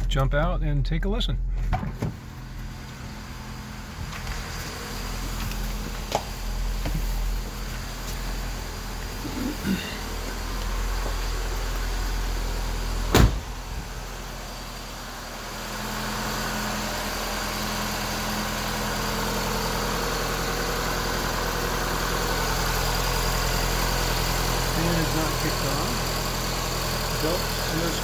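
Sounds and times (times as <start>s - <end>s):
car engine idling: 0.0s - 28.0s
car door shutting: 1.5s - 2.4s, 4.0s - 8.1s, 13.0s - 14.0s.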